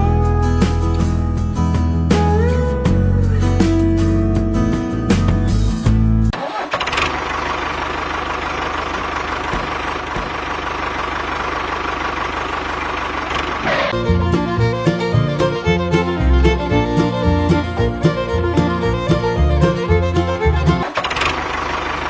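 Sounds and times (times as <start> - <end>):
music: 0.0 - 6.3, 14.0 - 20.8
small tractor engine running: 6.3 - 22.0.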